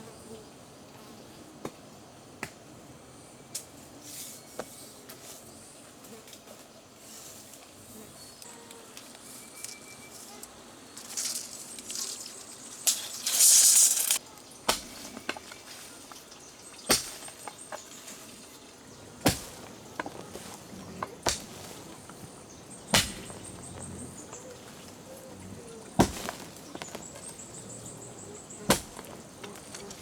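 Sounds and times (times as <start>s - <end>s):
loud hissing scrape: 11.4s - 14.2s
sharp knocks: 22.9s - 23.9s.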